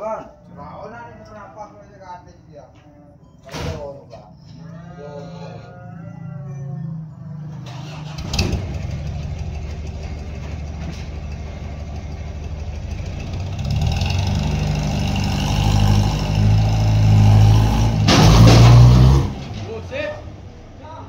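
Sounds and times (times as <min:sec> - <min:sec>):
engine running: 0:06.7 - 0:20.9.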